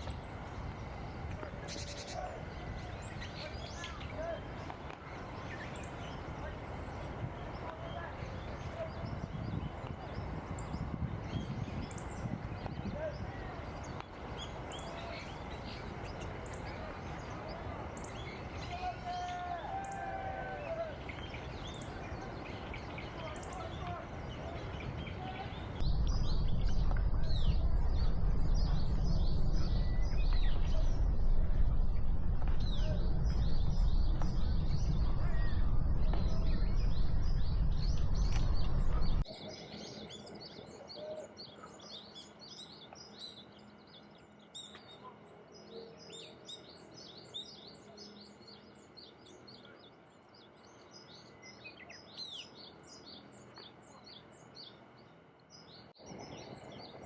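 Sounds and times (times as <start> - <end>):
birds chirping and twittering: 0.0 - 57.0
loud low rumble: 23.9 - 39.3.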